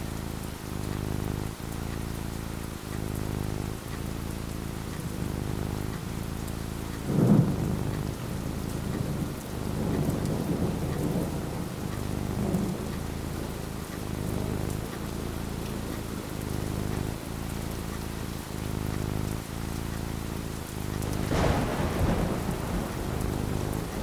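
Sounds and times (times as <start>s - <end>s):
steady rain falling: 0.0s - 24.0s
thunder rumbling: 7.0s - 17.3s, 20.6s - 24.0s.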